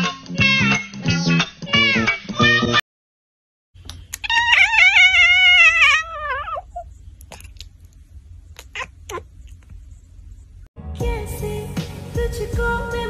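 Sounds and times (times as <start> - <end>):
low steady hum: 3.8 - 10.7
cat meowing: 4.2 - 6.9, 8.6 - 9.3.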